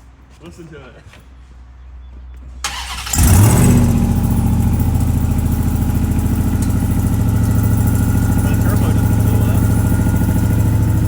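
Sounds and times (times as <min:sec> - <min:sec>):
engine cranking and starting: 0:02.6 - 0:11.0
engine idling: 0:02.6 - 0:11.0.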